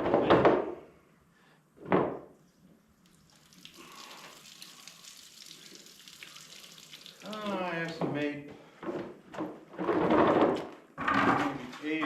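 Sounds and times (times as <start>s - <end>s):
coolant draining and splashing: 3.0s - 8.0s.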